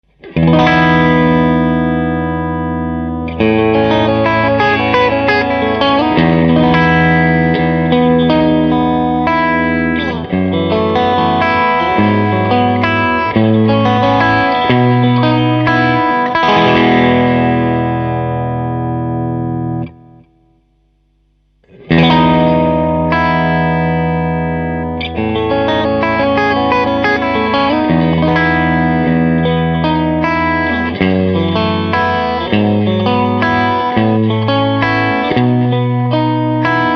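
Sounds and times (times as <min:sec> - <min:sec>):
overdriven electric guitar chords: 0:00.0 - 0:36.9.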